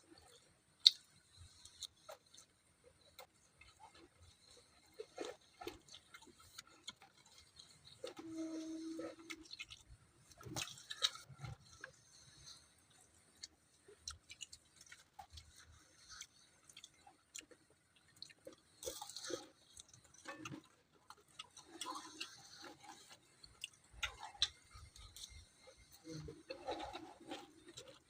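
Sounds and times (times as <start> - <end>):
chewing with wet mouth clicks: 0.1 - 28.0.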